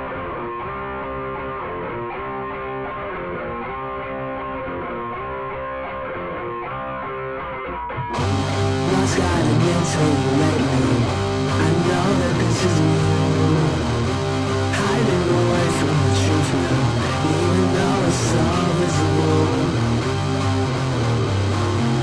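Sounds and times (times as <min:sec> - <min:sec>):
muffled guitar riff: 0:00.0 - 0:22.0
rock band with bass and drums: 0:00.0 - 0:22.0.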